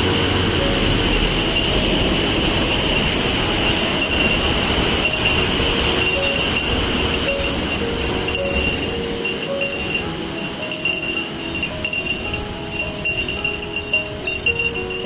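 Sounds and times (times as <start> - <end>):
waterfall roar: 0.0 - 15.0.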